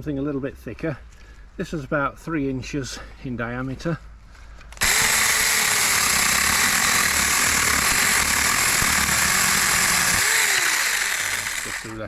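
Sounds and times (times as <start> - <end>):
mini chainsaw cutting branch: 4.8 - 12.0.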